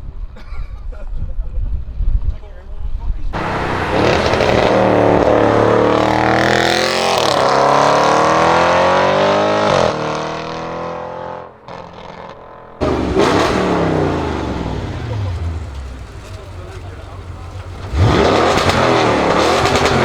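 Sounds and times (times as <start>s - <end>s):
loud burst of engine sound: 3.4s - 8.3s, 12.8s - 20.0s
car engine accelerating hard: 3.4s - 11.4s, 12.8s - 20.0s.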